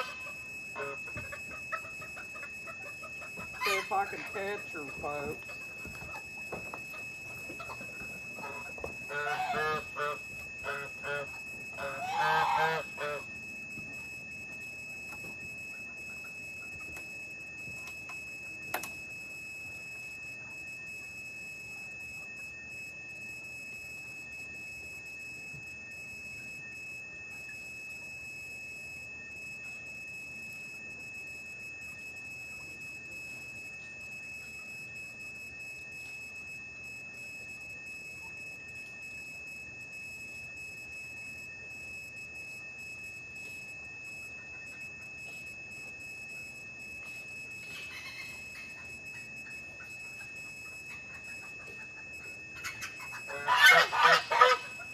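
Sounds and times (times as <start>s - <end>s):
goose honking: 0.0s - 0.2s, 0.8s - 1.0s, 3.6s - 4.6s, 8.4s - 13.2s, 53.3s - 54.8s
insect chorus: 0.0s - 13.3s, 47.6s - 49.3s
faint chirps: 0.0s - 19.0s, 26.0s - 54.9s
steady high-pitched whine: 0.0s - 54.9s.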